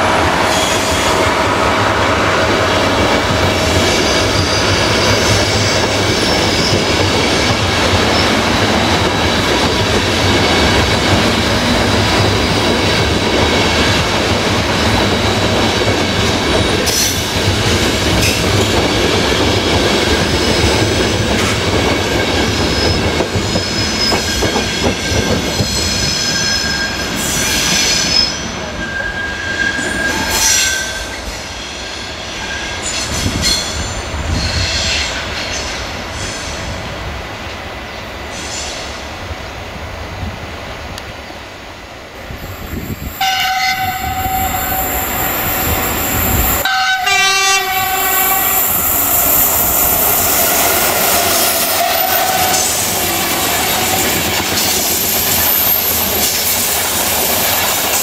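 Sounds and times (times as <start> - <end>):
train wheels rumbling on rail: 0.0 - 58.0
wheel squeal: 25.5 - 31.2.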